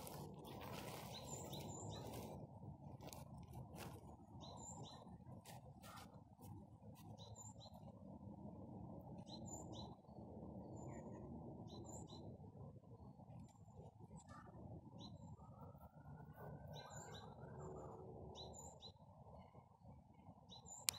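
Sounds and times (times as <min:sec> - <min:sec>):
steady low rumble: 0:00.0 - 0:16.4.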